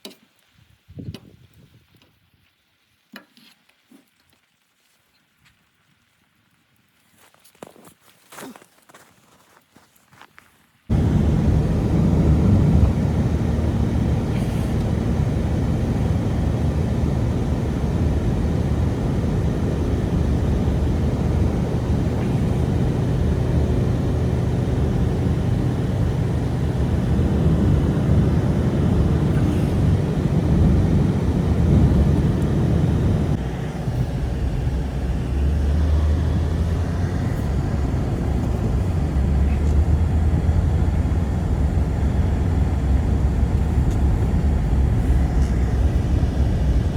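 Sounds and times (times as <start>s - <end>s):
steady low rumble: 10.9s - 46.9s.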